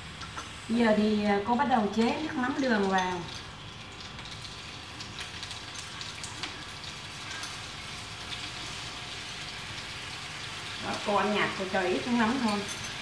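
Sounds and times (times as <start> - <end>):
chicken wings sizzling in oil: 0.0 - 13.0
liquid pouring into pan: 2.0 - 10.8.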